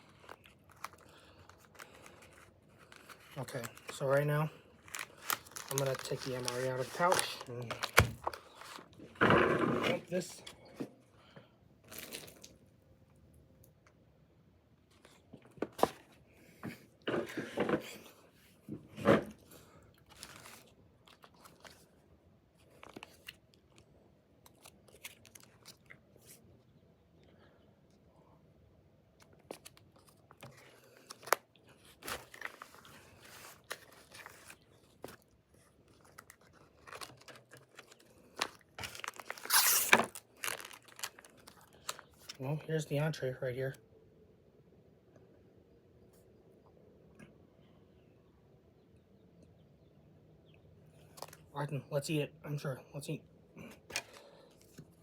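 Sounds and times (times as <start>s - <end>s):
plastic pouch crinkling: 0.0s - 9.1s, 11.8s - 12.6s, 20.0s - 22.0s, 22.6s - 26.4s, 29.2s - 42.4s.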